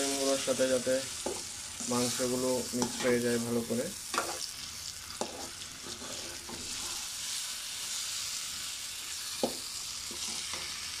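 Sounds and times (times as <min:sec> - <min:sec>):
chicken sizzling in hot oil: 0:00.0 - 0:11.0
metal spatula scraping a pan: 0:04.1 - 0:04.5, 0:05.1 - 0:07.4, 0:10.1 - 0:10.8.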